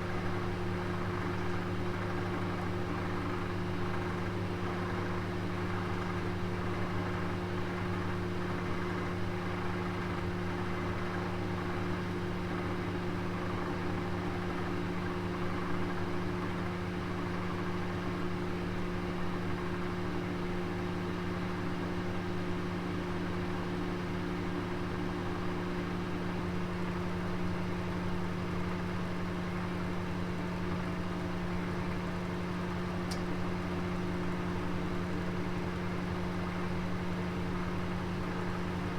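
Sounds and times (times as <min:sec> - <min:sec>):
oven humming and whirring: 0:00.1 - 0:38.9
oven tick: 0:33.0 - 0:33.4.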